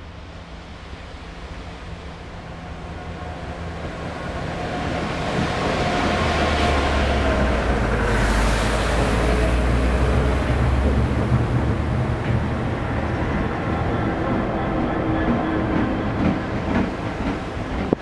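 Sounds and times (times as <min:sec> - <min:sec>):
diesel locomotive engine drone: 0:00.0 - 0:18.0
water jets hissing: 0:05.5 - 0:13.2.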